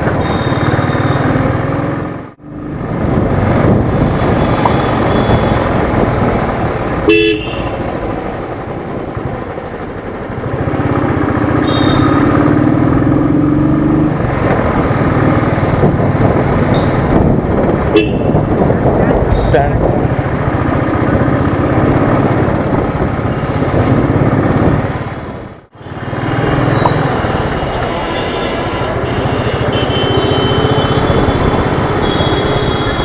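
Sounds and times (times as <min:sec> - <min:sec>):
motorcycle engine and road noise: 0:00.0 - 0:33.0.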